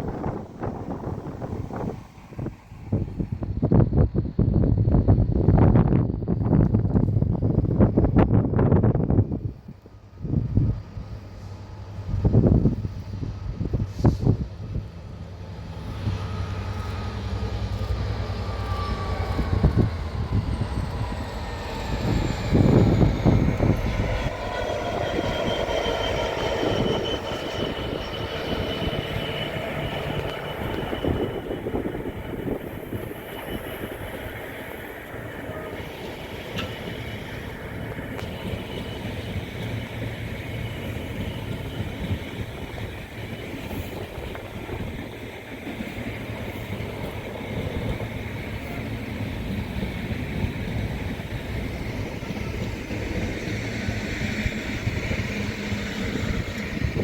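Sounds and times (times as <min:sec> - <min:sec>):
diesel locomotive engine passing: 0:00.0 - 0:57.0
train wheels rattling on rails: 0:11.2 - 0:57.0
high wheel squeal: 0:18.3 - 0:57.0.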